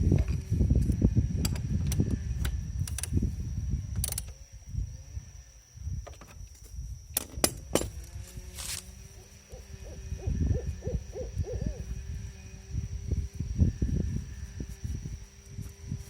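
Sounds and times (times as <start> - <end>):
bird hooting: 9.2 - 12.0.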